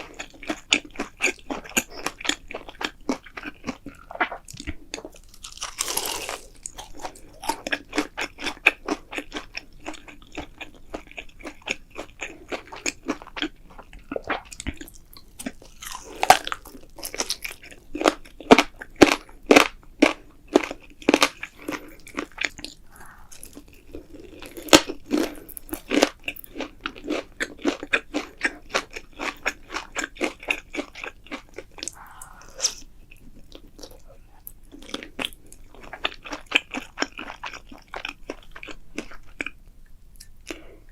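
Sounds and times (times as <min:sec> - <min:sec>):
crisp food crunching: 0:00.0 - 0:39.6.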